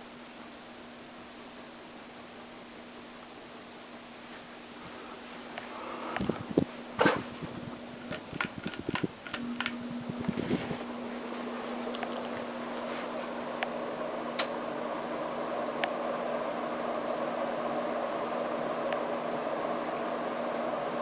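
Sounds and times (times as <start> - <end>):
air noise from fan blades: 0.0 - 21.0
ceiling fan motor hum: 0.0 - 21.0
sharp clicks and knocks: 8.0 - 9.8.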